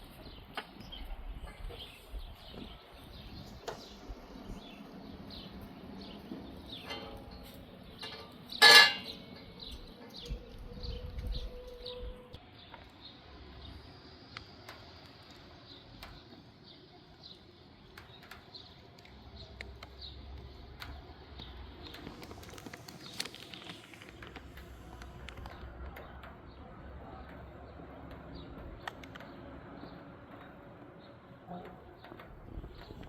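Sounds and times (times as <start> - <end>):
wind rumble on microphone: 0.0 - 6.8, 9.6 - 12.4, 31.8 - 33.0.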